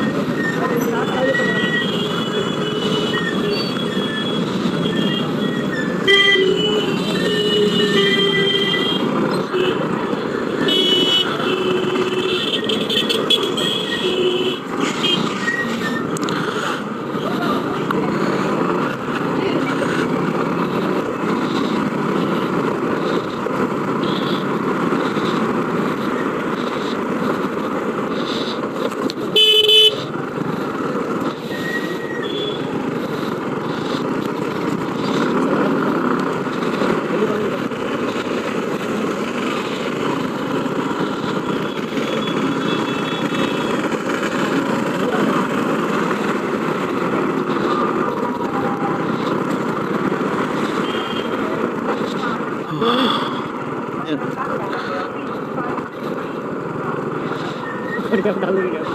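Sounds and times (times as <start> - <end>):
road and wind noise: 0.0 - 58.9
street traffic: 0.0 - 58.9
vehicle horn blast: 29.3 - 30.0.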